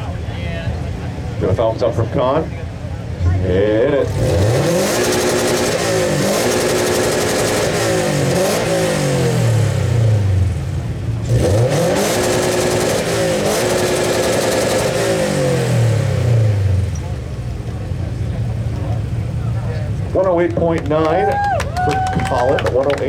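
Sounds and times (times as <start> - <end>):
car engine revving hard: 3.4 - 20.4.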